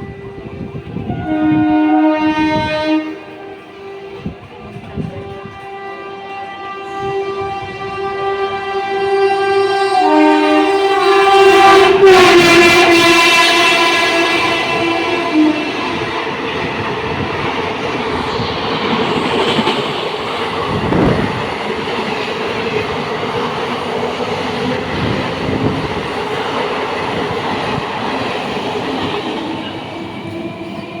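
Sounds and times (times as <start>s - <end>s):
train horn: 0.0s - 17.4s
train wheels clattering over rails: 14.2s - 31.0s.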